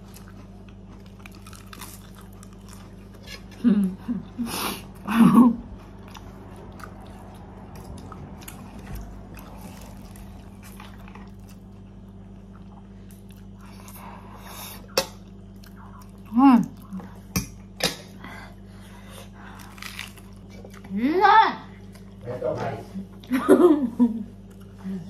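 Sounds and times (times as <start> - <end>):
person chewing noodles: 0.0 - 17.3, 18.7 - 20.9.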